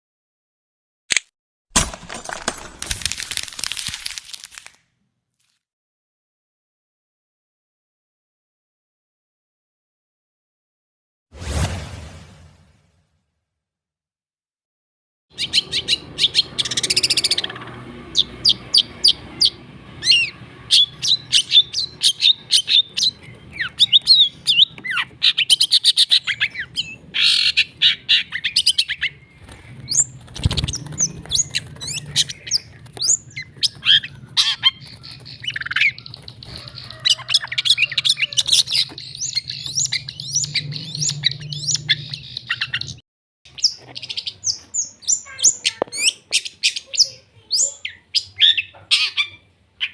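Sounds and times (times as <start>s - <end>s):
shrike singing chirps and trills: 15.3s - 49.9s.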